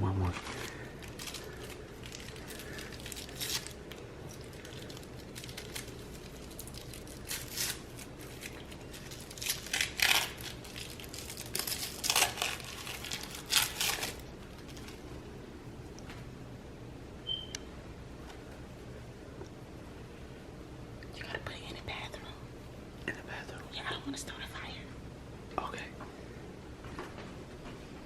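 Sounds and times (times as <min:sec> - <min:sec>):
wrapping crinkling and rustling: 0:00.2 - 0:15.2.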